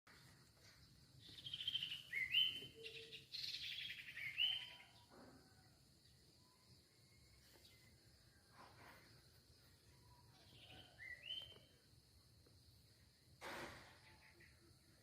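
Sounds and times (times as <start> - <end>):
songbird whistling: 1.4 - 4.9, 10.6 - 11.7.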